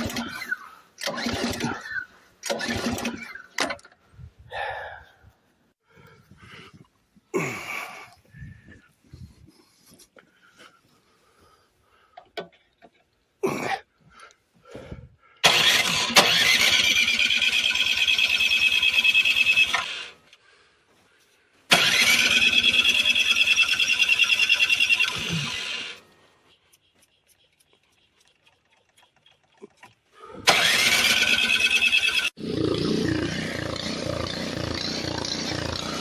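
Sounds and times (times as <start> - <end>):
engine cranking with starter: 0.0 - 4.0, 15.4 - 20.2, 21.7 - 26.0, 27.3 - 36.0.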